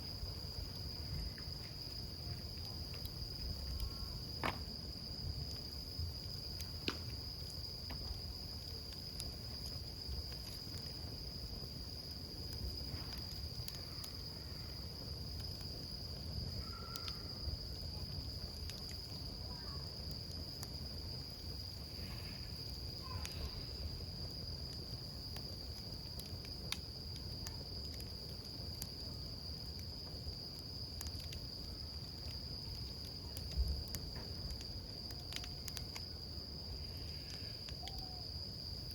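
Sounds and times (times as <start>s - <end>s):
campfire crackling and popping: 0.0s - 38.9s
cricket chirping: 0.0s - 38.9s.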